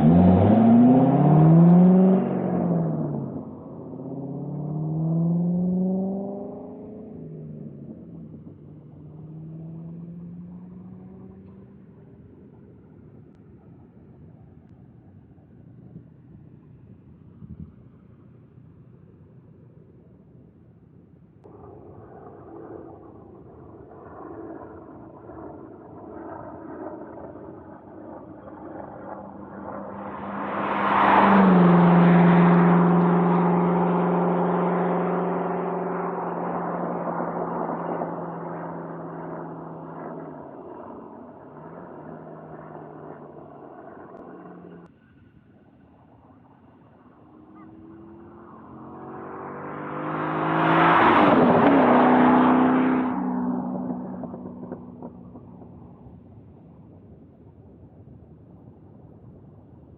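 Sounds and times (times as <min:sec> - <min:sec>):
sports car engine driving past: 0:00.0 - 0:12.7, 0:21.5 - 0:45.3, 0:46.0 - 0:56.4.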